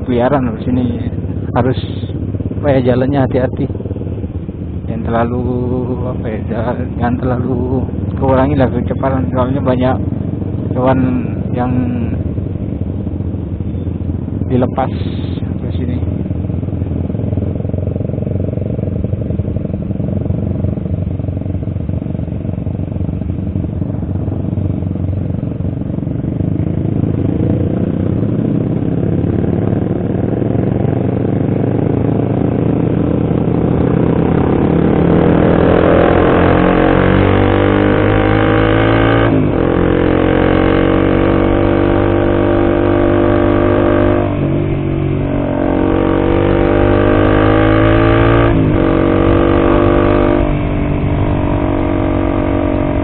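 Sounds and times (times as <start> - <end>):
motorcycle engine accelerating: 0.0 - 53.0
wind rush: 40.8 - 53.0.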